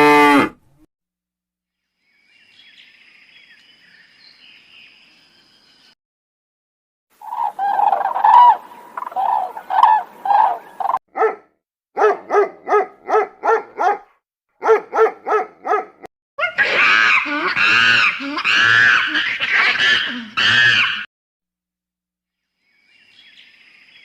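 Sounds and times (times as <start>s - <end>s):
dog barking: 11.1s - 16.1s.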